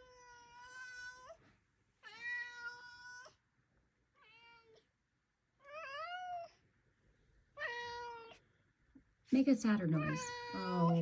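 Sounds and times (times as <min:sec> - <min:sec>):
cat meowing: 0:02.0 - 0:03.3, 0:07.6 - 0:08.4, 0:10.0 - 0:11.0.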